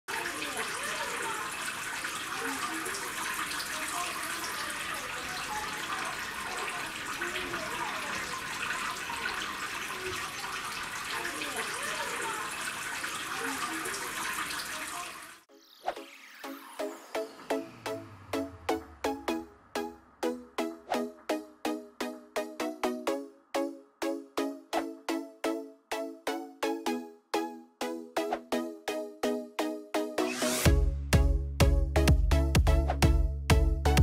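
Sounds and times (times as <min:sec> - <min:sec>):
fountain water splashing into basin: 0:00.1 - 0:15.5.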